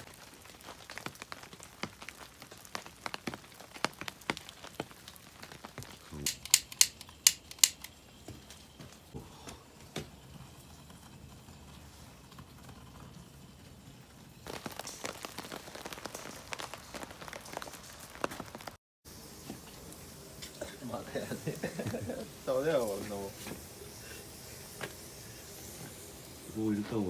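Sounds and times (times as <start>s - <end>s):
sharp clicks and ticks: 6.2s - 8.0s.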